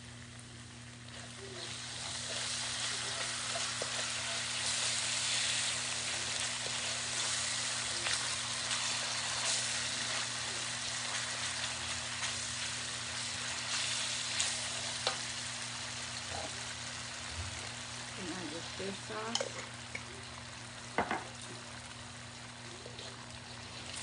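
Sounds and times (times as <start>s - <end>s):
spice paste sizzling in a wok: 0.0s - 24.0s
wooden spoon tapping a wok: 21.0s - 21.3s.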